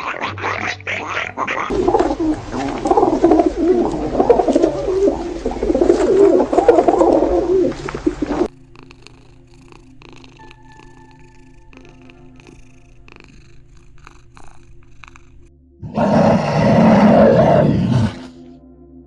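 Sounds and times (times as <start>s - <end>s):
animal warbling calls: 0.0s - 8.5s, 15.8s - 18.4s
faint steady tones: 1.7s - 14.0s.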